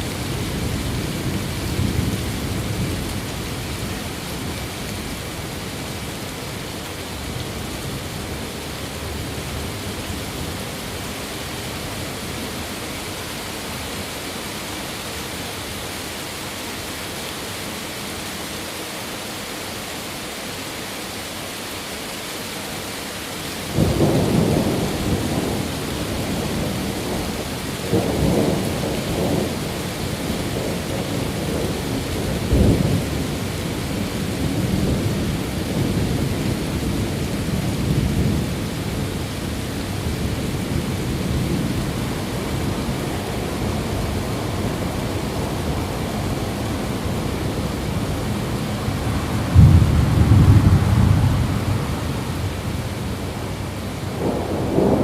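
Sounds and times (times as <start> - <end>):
heavy rain hissing: 0.0 - 55.0
thunder rumbling: 23.7 - 39.0, 40.0 - 55.0.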